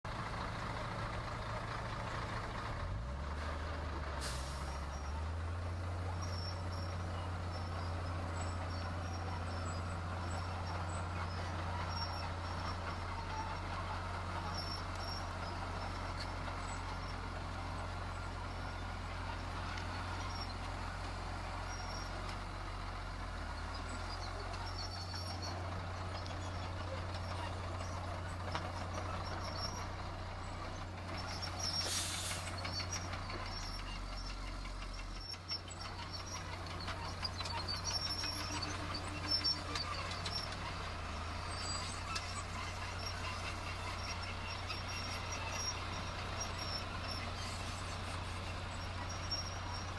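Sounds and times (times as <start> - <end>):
diesel machinery engine drone: 0.1 - 49.9
short hiss: 4.2 - 4.7, 31.8 - 32.6.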